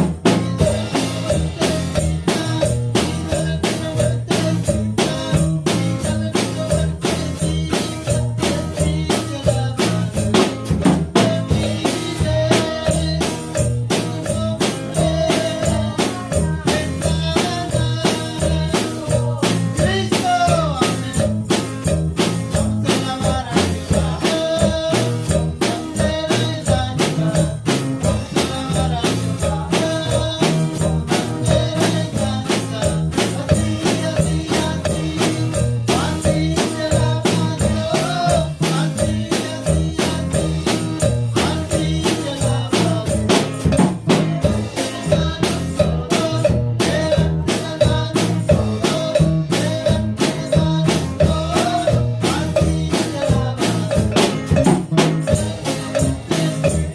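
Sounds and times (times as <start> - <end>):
drum kit fast beat: 0.0 - 56.9
live band playing upbeat song: 0.0 - 56.9.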